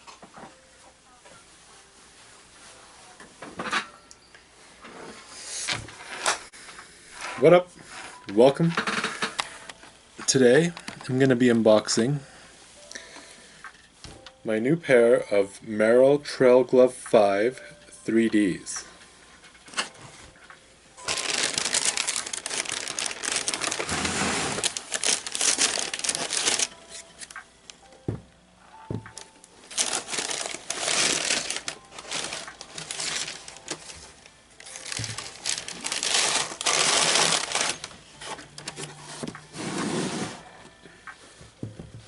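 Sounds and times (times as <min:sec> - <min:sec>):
wrapping crinkling and rustling: 0:18.5 - 0:27.4, 0:29.1 - 0:40.8.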